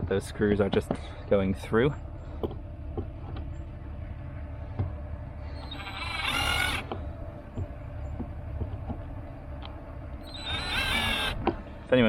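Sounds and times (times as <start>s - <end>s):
light handling knocks: 0.0s - 1.2s, 2.4s - 3.6s, 4.7s - 5.0s, 6.8s - 9.8s
screws spinning in holes: 5.7s - 6.8s, 10.3s - 11.4s.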